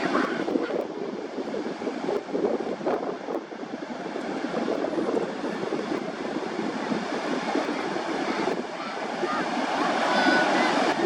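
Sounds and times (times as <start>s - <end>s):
surf on a beach: 0.0s - 11.0s
wind: 0.0s - 11.0s.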